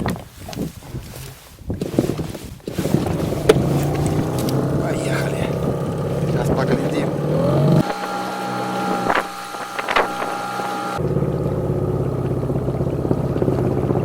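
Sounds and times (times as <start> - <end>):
outboard motor drone: 2.8 - 14.0
thin steady whine: 3.7 - 13.4.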